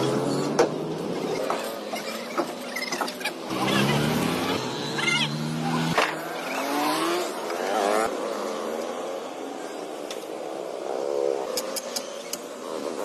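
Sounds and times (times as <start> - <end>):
sharp clicks: 11.5 - 12.5.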